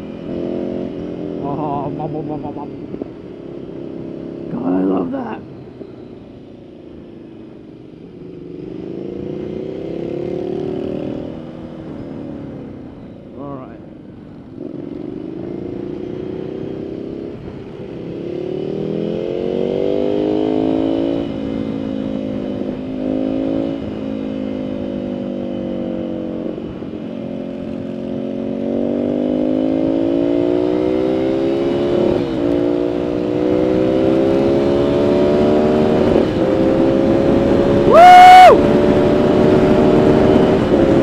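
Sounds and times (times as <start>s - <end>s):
motorcycle engine accelerating: 14.4s - 41.0s
wind rushing over microphone: 30.6s - 41.0s.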